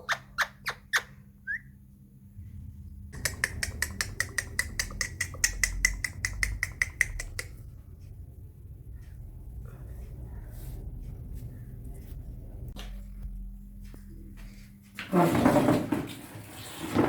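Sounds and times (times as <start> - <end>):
parakeet clicking chirps: 0.0 - 1.6, 3.2 - 7.6.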